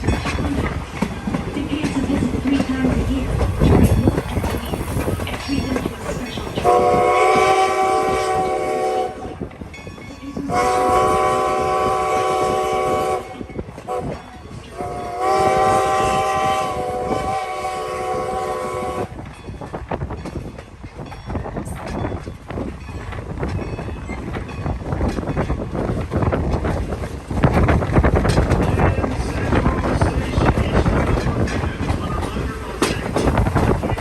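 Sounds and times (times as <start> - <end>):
rail clatter: 0.0 - 34.0
steam locomotive chime whistle: 5.5 - 9.4, 10.0 - 19.2.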